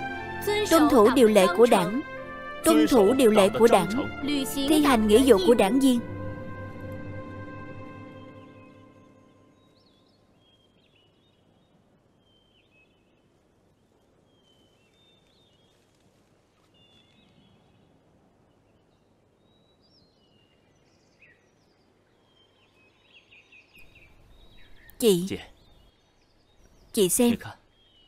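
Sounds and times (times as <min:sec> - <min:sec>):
small birds chirping: 0:16.6 - 0:28.0.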